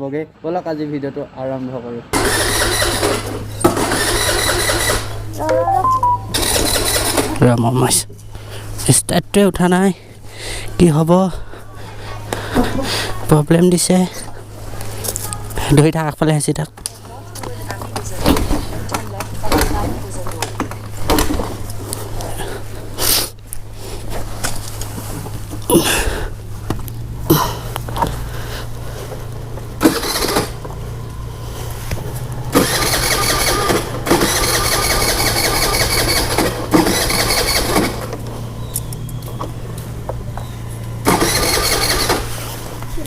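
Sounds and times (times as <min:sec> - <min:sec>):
scooter engine cranking: 0:02.1 - 0:05.5, 0:06.2 - 0:07.6, 0:27.3 - 0:31.4, 0:32.4 - 0:39.7, 0:41.0 - 0:43.0.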